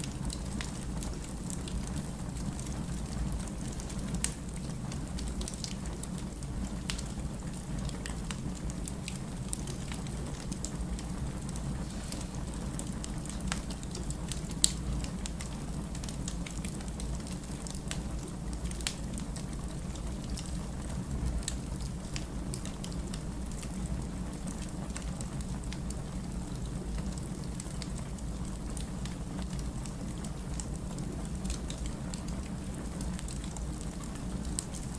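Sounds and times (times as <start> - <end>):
wood fire crackling: 0.1 - 34.9.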